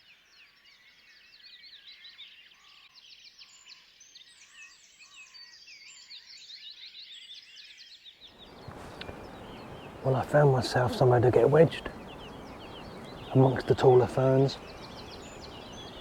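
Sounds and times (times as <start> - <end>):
songbirds chirping and trilling: 0.0 - 16.0
lower bird call notes: 8.4 - 16.0.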